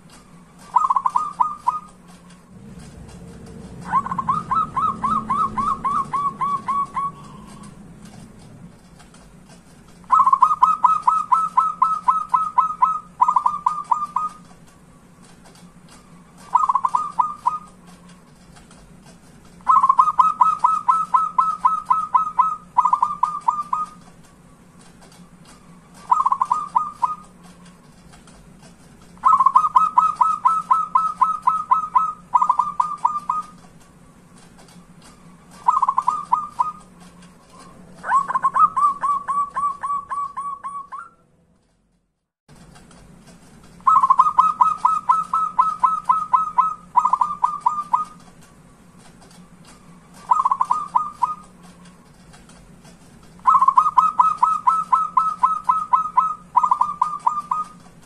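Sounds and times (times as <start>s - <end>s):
dove cooing: 0.6s - 8.4s, 10.1s - 14.5s, 16.3s - 17.8s, 19.6s - 24.0s, 26.0s - 27.4s, 29.2s - 33.6s, 35.5s - 37.0s, 37.6s - 41.2s, 43.8s - 48.2s, 50.1s - 51.6s, 53.4s - 57.8s.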